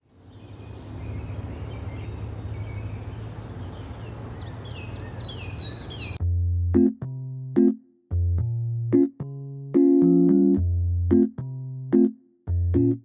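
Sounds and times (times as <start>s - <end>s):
insect drone: 0.0s - 6.2s
bird chirps: 0.1s - 6.2s
electric piano music: 6.2s - 13.0s.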